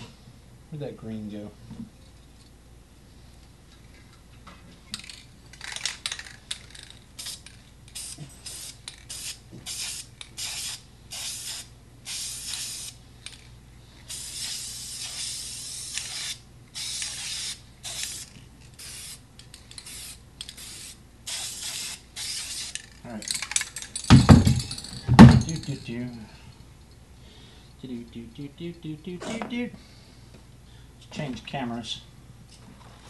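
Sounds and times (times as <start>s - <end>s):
spray paint can hissing: 6.7s - 13.0s, 14.1s - 23.0s.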